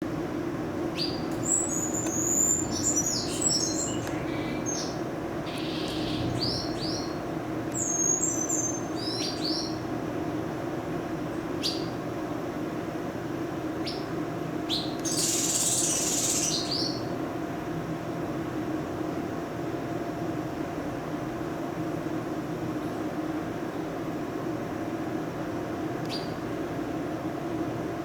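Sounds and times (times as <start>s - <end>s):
steady low hum: 0.0s - 28.0s
birds chirping: 1.0s - 9.8s, 14.7s - 17.1s.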